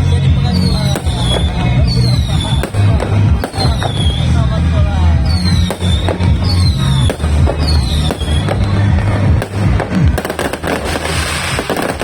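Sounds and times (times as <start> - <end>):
whistling firework shell: 0.0 - 4.3, 5.2 - 8.8
fireworks bangs and crackling: 0.0 - 12.0
music with heavy bass beat: 0.0 - 12.0
crackling hiss of bursting stars: 9.5 - 12.0.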